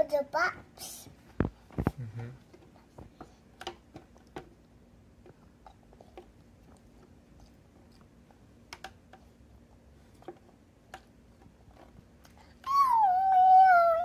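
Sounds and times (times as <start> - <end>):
faint steady hum: 0.0 - 14.0
small clicks and taps: 8.7 - 9.3.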